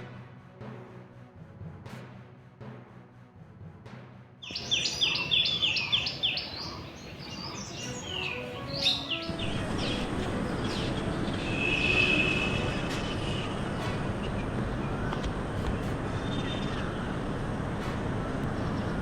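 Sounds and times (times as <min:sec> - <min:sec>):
birds singing: 0:04.4 - 0:19.0
steady rushing noise: 0:04.6 - 0:19.0.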